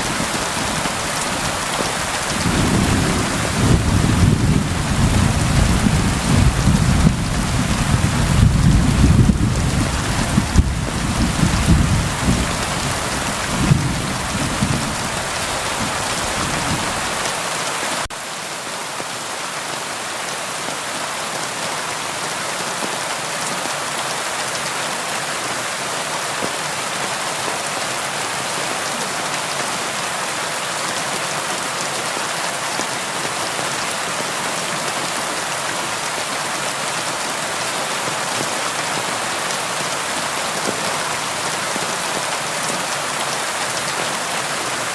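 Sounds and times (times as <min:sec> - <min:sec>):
thunder rumbling: 0:00.0 - 0:17.2
rain on a window: 0:00.0 - 0:17.3.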